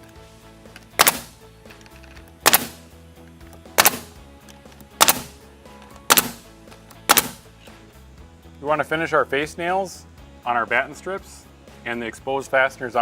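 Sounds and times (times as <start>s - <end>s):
nail gun shots: 1.0s - 1.4s, 2.4s - 2.9s, 3.8s - 4.2s, 5.0s - 5.4s, 6.1s - 7.5s.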